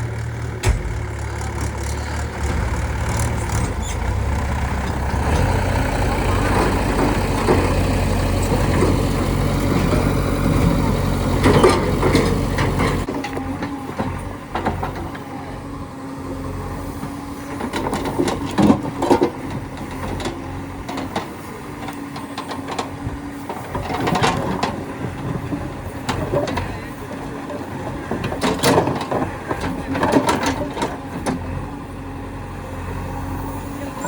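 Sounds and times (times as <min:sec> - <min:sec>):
heavy diesel engine running: 0:00.0 - 0:34.0
scattered knocks: 0:00.6 - 0:05.1.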